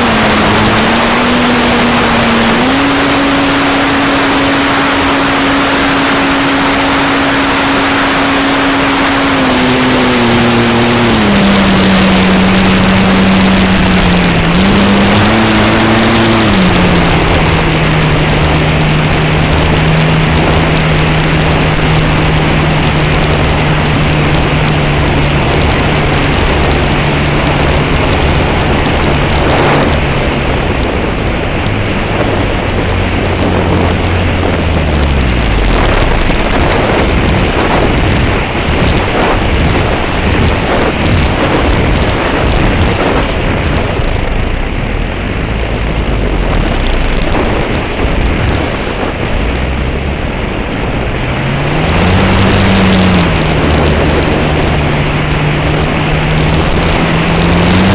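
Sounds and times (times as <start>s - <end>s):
electric motor and propeller hum: 0.0s - 30.8s
wind rush: 0.0s - 57.9s.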